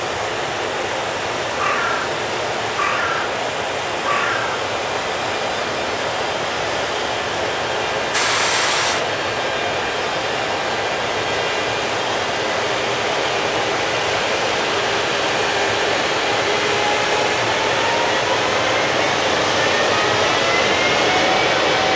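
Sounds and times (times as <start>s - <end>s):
short burst of hiss: 8.1s - 9.0s.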